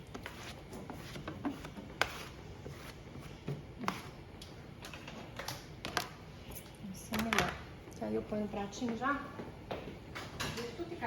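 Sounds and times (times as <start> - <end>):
cloth rubbing cutting board: 0.1 - 4.1.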